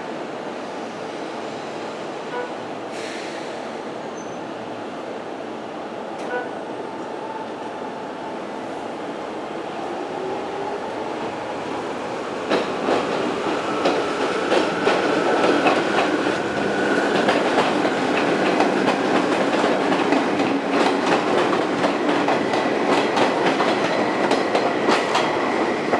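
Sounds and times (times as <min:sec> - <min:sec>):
train wheels clicking over rail joints: 0:12.4 - 0:25.4.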